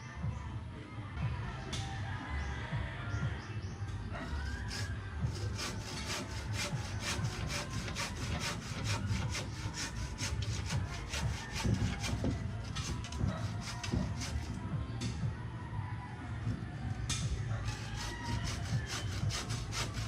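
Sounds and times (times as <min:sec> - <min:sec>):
handsaw cutting wood: 0:04.2 - 0:14.6, 0:17.6 - 0:20.0.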